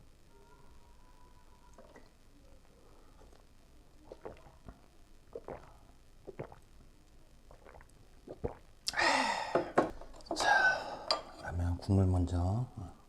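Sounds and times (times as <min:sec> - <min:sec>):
noisy sips or slurps: 0:04.0 - 0:06.6, 0:07.5 - 0:09.3.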